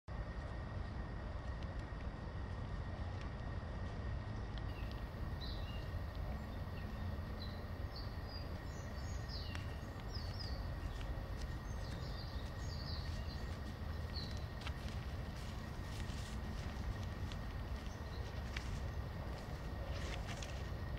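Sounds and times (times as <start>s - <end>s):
low background rumble: 0.1s - 20.9s
small birds chirping: 4.6s - 20.9s.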